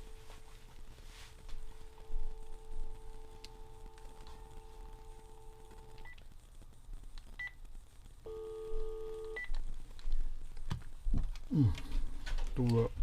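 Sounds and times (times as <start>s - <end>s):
multi-tone signal: 0.0s - 0.7s, 1.5s - 6.1s, 8.3s - 9.5s
telephone line tone: 1.7s - 6.2s, 8.3s - 9.5s.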